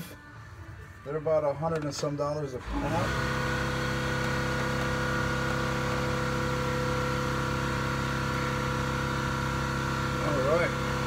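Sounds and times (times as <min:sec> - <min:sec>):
steady machine hum: 0:02.6 - 0:11.0.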